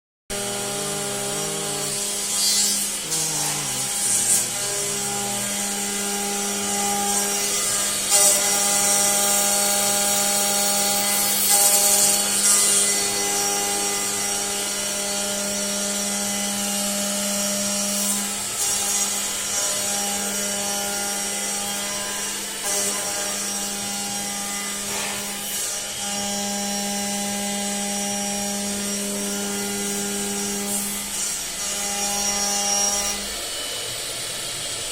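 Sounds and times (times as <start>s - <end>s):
lathe motor whine: 0.3s - 34.9s
metal being cut: 0.3s - 34.9s.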